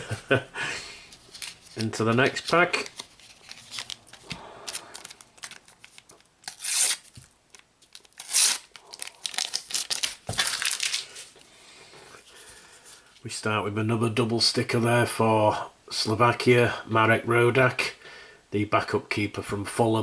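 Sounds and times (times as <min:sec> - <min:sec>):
foil packet crackling: 0:01.3 - 0:11.3
foil packet ripping: 0:01.3 - 0:11.3.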